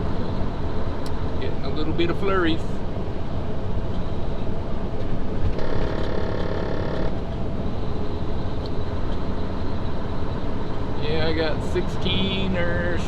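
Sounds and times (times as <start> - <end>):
truck engine and road rumble: 0.0 - 13.0
steady buzzing tone: 5.5 - 12.6.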